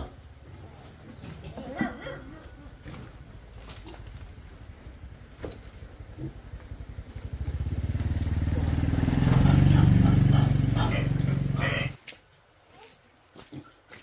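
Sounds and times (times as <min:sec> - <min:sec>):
motorcycle engine approaching: 0:04.1 - 0:12.0.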